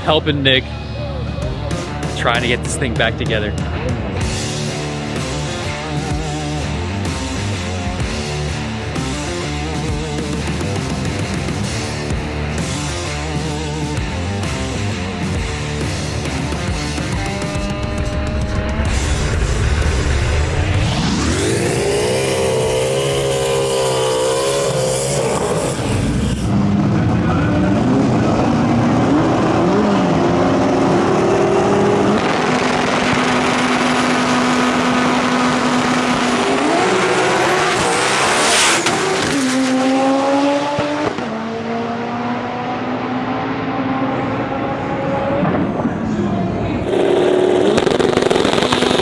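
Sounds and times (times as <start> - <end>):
race car engines revving: 0.0 - 49.0
sharp crack: 46.8 - 49.0.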